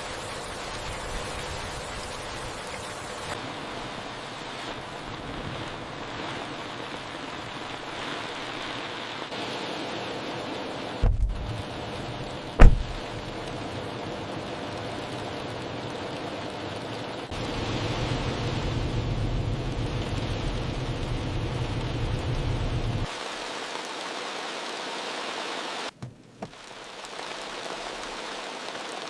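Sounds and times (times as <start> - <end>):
heavy rain: 0.0 - 29.0.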